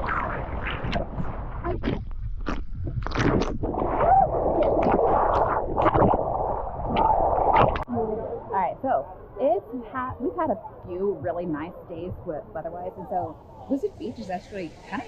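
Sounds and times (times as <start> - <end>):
water splashes and slaps: 0.0 - 7.9.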